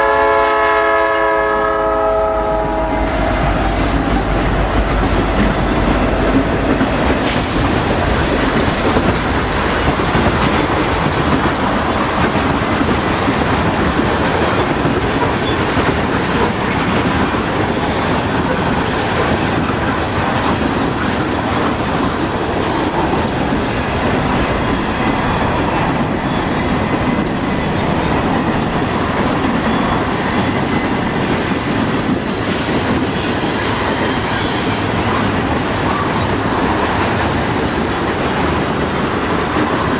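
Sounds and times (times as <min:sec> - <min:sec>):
freight train rolling past: 0:00.0 - 0:39.9
wheels clacking over rail joints: 0:03.0 - 0:39.9.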